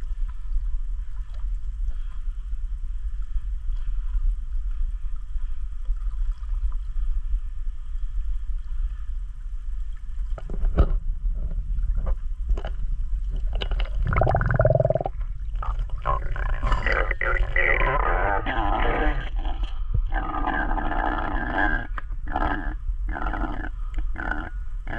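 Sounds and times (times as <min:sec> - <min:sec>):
grunt-like voice: 0:16.0 - 0:24.9.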